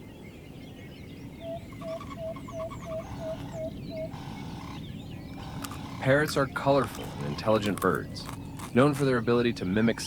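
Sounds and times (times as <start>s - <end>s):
birds chirping: 0.0s - 10.0s
repeated short bird call notes: 1.8s - 8.9s.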